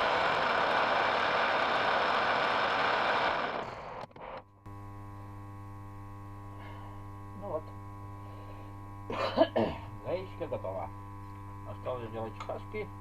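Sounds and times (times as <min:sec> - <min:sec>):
steady electrical hum: 0:04.2 - 0:13.0.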